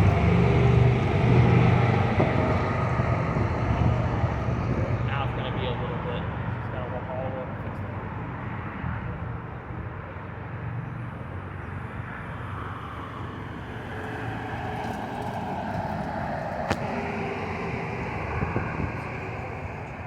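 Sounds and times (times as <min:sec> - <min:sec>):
vehicle engine running: 0:00.0 - 0:05.8.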